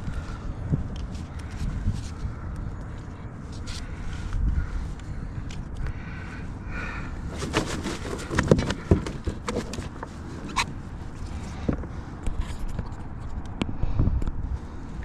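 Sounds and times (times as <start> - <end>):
wind rumbling on microphone: 0.0 - 15.0
knocks and clatters on a kayak: 7.3 - 10.6.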